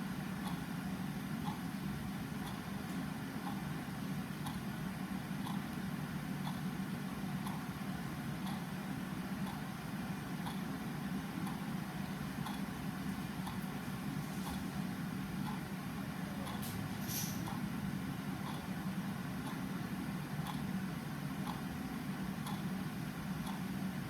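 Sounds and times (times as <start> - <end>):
faint clock ticking: 0.4 - 3.7, 4.3 - 7.8, 8.4 - 8.8, 9.4 - 13.8, 15.4 - 15.8, 16.4 - 16.6, 18.4 - 18.8, 19.4 - 20.8, 21.4 - 23.8.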